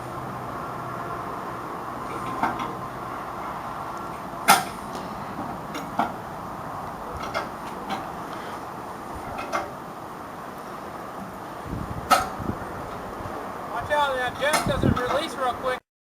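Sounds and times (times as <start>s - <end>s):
engine drone: 0.0s - 15.8s
sharp knocks and clanks: 14.4s - 15.2s.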